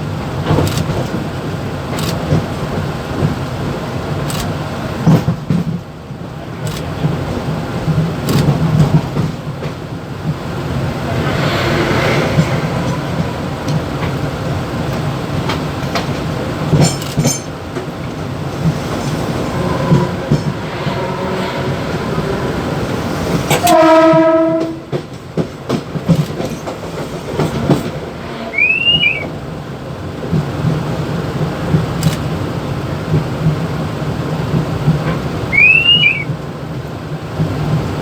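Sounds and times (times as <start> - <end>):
train running on rails: 0.0 - 38.0
train horn blast: 19.4 - 25.0, 28.0 - 29.3.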